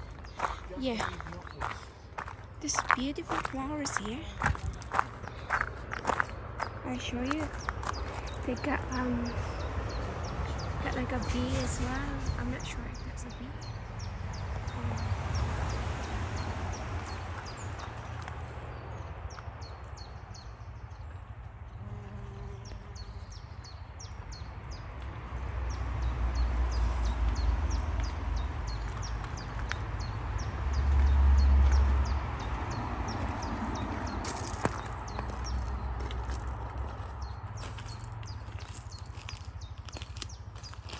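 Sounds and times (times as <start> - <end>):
wind rumbling on microphone: 4.3 - 21.8.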